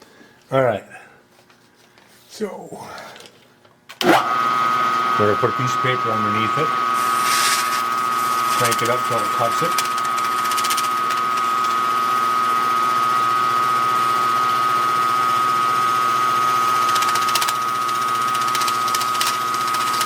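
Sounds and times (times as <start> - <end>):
milling machine high whine: 4.0 - 20.0.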